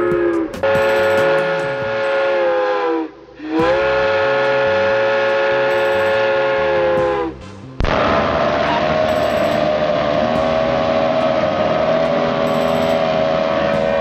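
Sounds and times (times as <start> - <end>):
chime whistle blasts: 0.6 - 2.5, 5.7 - 7.2, 8.6 - 11.3, 12.0 - 14.0.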